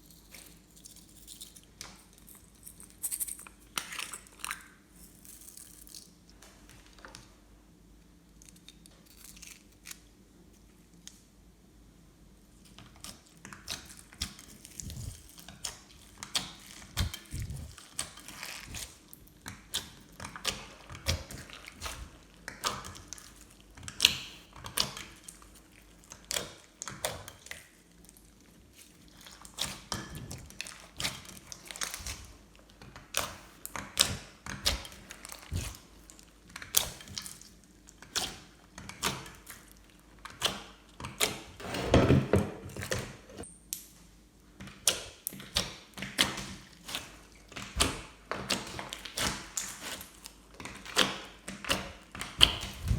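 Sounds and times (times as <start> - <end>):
slime squishing with sticky clicks: 12.6 - 41.5, 44.6 - 52.9.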